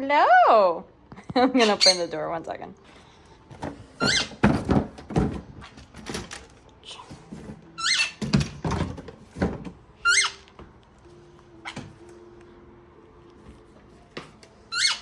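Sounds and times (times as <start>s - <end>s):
parrot squawking: 1.6s - 2.2s, 4.0s - 4.4s, 7.8s - 8.2s, 10.0s - 10.5s, 14.7s - 15.0s
birdcage door clunking and rattling: 3.6s - 6.5s, 7.8s - 9.8s.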